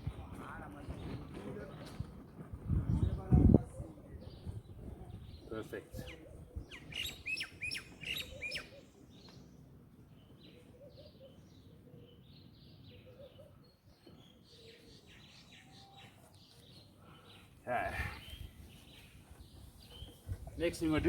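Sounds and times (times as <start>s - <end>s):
small bird chirping: 4.4s - 17.5s.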